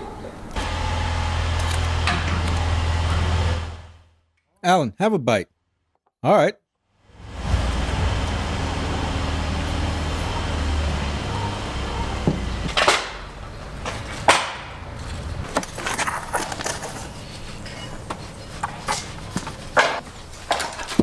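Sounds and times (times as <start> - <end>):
low motor hum: 0.4 - 4.1, 7.1 - 18.1.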